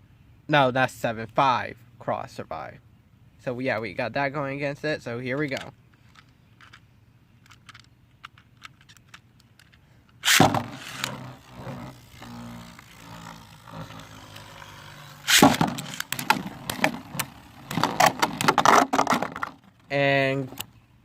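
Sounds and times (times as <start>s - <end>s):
launcher clicks: 7.4s - 11.6s, 14.3s - 18.5s
hard plastic clattering: 7.4s - 19.8s
spinning tops whirring: 10.2s - 18.6s
spinning top launch rip: 10.2s - 19.1s.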